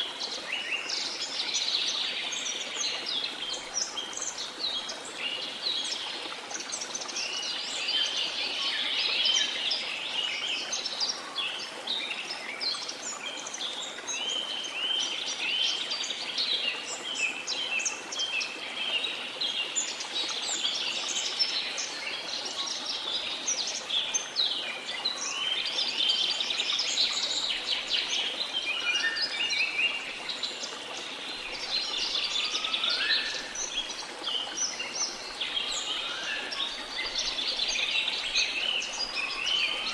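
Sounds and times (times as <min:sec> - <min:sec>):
rushing waterfall: 0:00.0 - 0:39.9.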